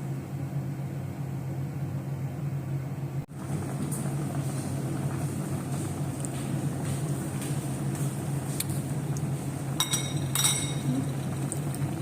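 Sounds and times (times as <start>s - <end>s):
utensil clinking against dish: 9.8s - 11.1s.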